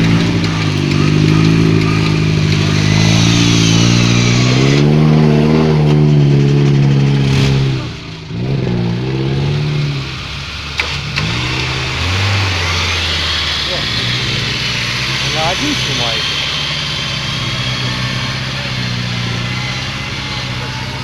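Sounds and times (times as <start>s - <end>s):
off-road vehicle engine revving: 0.0s - 21.0s
loud hiss: 9.4s - 21.0s.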